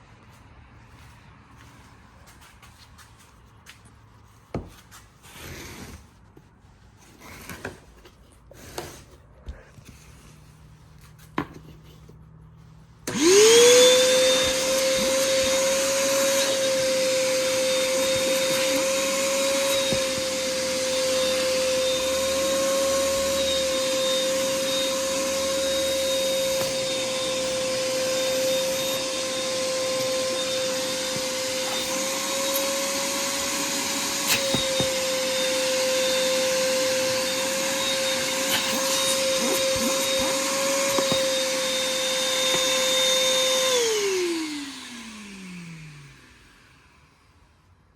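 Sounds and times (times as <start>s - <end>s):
shop vacuum motor running: 13.0s - 47.6s.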